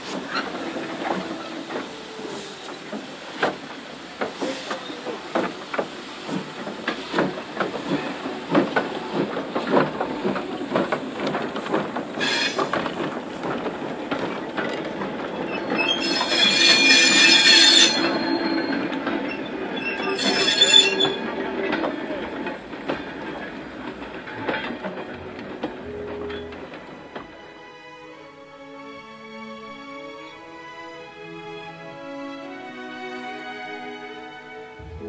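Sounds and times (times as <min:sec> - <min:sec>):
train wheels knocking on rails: 0:00.9 - 0:27.4
loud high squeal with hiss: 0:12.2 - 0:12.7, 0:15.5 - 0:21.4
low drone: 0:34.8 - 0:35.0.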